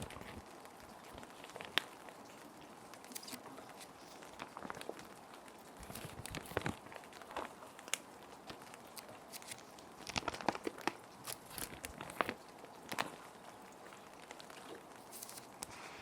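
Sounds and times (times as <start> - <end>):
plastic sheet protectors crinkling: 0.0 - 16.0
rain hissing: 10.8 - 16.0.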